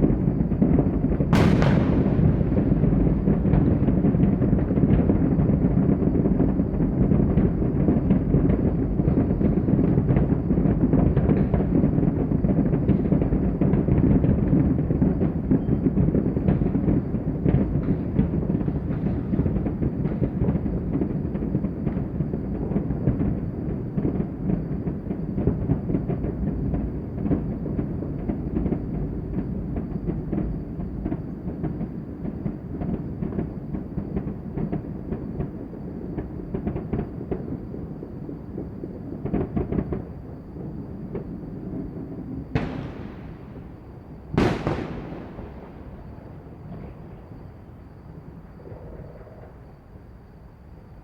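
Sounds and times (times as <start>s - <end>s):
fireworks and firecrackers popping: 0.0s - 49.0s
low rumble: 1.4s - 4.5s.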